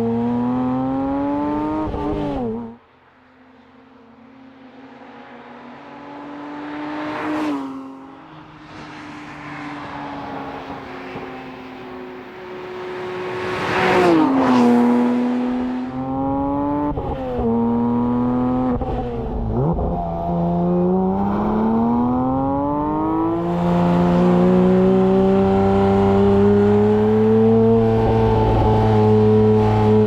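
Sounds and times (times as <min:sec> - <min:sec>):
car engine accelerating through gears: 0:00.0 - 0:02.8, 0:12.5 - 0:30.0.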